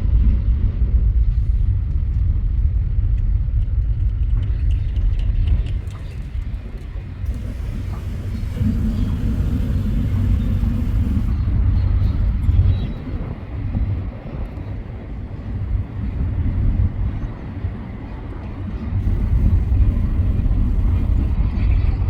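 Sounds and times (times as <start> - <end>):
freight train rumbling past: 5.2 - 22.0.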